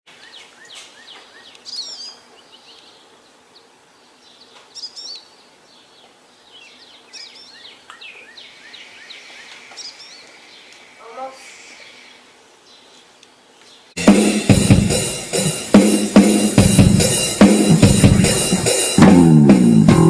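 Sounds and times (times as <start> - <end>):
birds chirping and warbling: 0.1 - 14.0.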